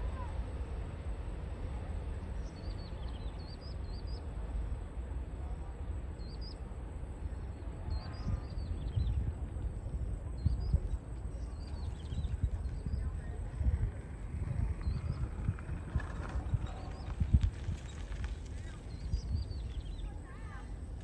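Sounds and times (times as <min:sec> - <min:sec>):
low rumble: 0:00.0 - 0:21.0
small birds chirping: 0:02.3 - 0:04.3, 0:06.2 - 0:06.6, 0:07.4 - 0:21.0.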